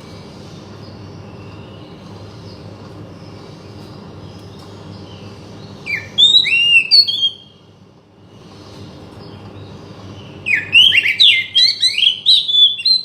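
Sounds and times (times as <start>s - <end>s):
bird singing whistled phrases: 5.8s - 7.6s, 10.4s - 13.0s.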